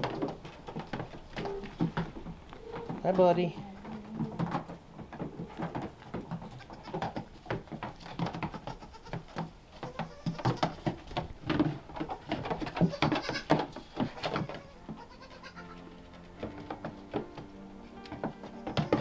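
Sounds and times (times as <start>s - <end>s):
animals knocking and rustling: 0.0s - 19.0s
goats bleating: 2.5s - 4.7s, 6.4s - 7.3s, 8.3s - 11.0s, 12.1s - 19.0s.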